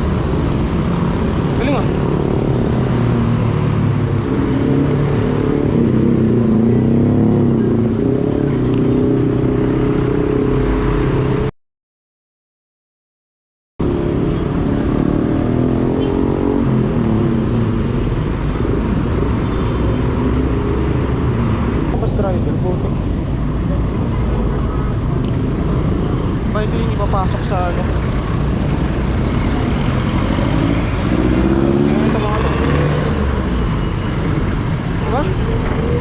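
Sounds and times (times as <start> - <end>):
vehicle engines running close: 0.0 - 10.0
traffic noise: 0.0 - 11.5, 13.8 - 36.0.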